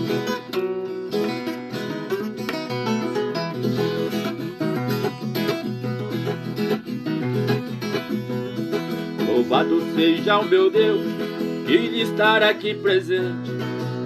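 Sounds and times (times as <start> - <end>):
plucked steel-strung guitar melody: 0.0 - 14.0
person singing: 9.0 - 14.0.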